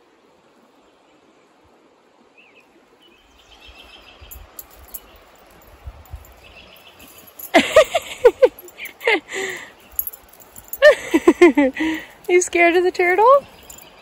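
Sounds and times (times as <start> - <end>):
bird chirping: 6.3 - 7.3, 13.0 - 14.0.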